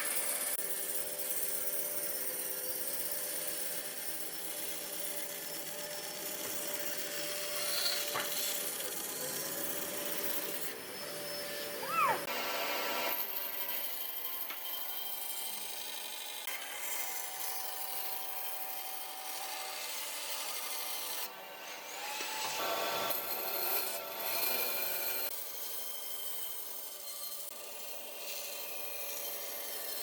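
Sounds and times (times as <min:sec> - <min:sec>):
power tool rasping wood: 0:03.0 - 0:30.0
short pitched squeal: 0:10.9 - 0:12.3.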